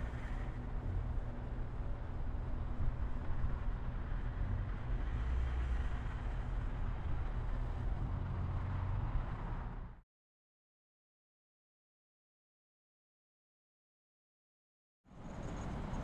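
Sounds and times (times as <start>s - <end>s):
engine hum: 0.0s - 10.0s.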